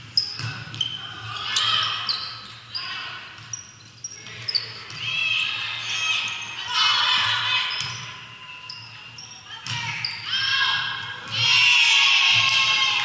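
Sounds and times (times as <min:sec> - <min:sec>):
sneakers squeaking on gym floor: 0:00.0 - 0:06.6, 0:07.2 - 0:10.5.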